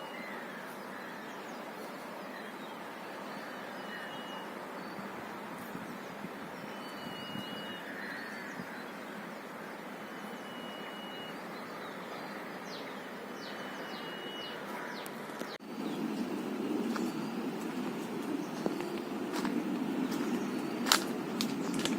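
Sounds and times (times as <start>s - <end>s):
birds whistling and chirping: 6.6s - 8.0s, 10.0s - 14.7s.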